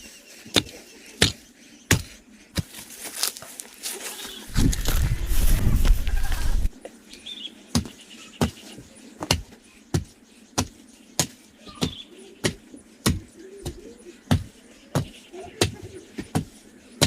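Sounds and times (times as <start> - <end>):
faint bird chirps: 6.0 - 17.0.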